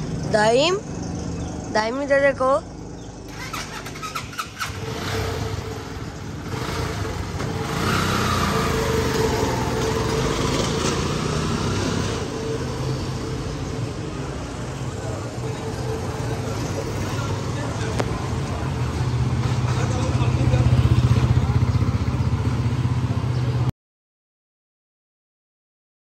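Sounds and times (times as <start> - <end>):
vehicle engine running: 0.0 - 23.7.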